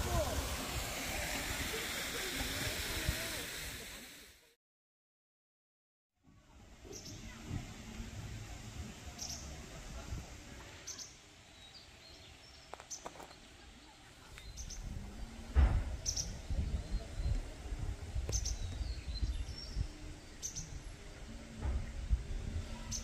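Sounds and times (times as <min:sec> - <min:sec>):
faint outdoor hiss: 0:00.0 - 0:04.4, 0:06.2 - 0:23.0
thumps on microphone: 0:15.6 - 0:16.0.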